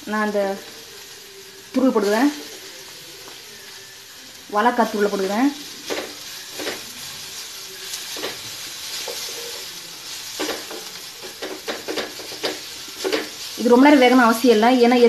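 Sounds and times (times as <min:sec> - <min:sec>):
food sizzling in oil: 0:00.0 - 0:15.0
wooden spatula scraping a pan: 0:05.8 - 0:14.1.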